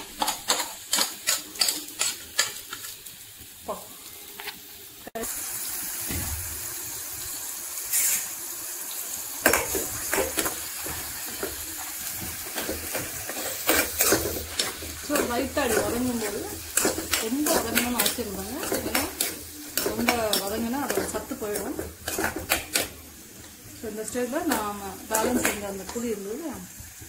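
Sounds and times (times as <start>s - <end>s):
metal spoon tapping and scraping: 0.0s - 2.9s, 12.2s - 23.0s, 24.4s - 26.1s
masala sizzling in hot oil: 0.0s - 27.0s.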